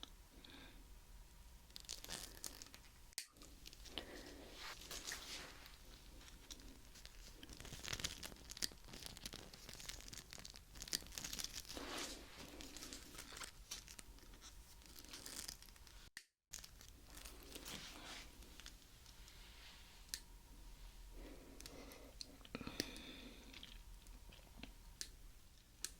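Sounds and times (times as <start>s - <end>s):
crinkly crackling rustle: 1.7s - 20.2s.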